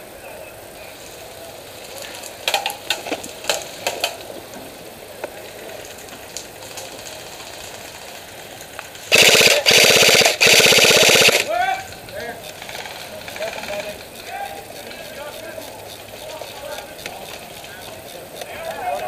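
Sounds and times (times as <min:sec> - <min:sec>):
sharp single shots: 0:09.1 - 0:11.5
airsoft gun rapid bursts: 0:09.1 - 0:11.6.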